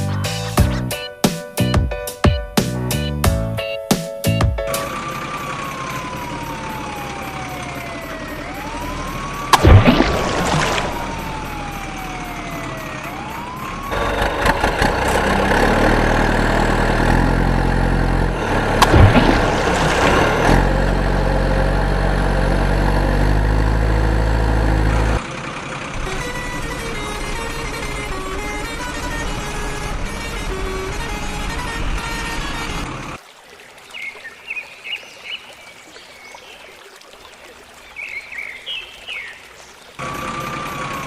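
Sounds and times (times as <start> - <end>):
heavy vehicle engine running: 4.3 - 33.2, 40.0 - 41.0
wailing siren: 4.9 - 14.0
loud crash: 18.7 - 20.6
bang: 18.8 - 20.4.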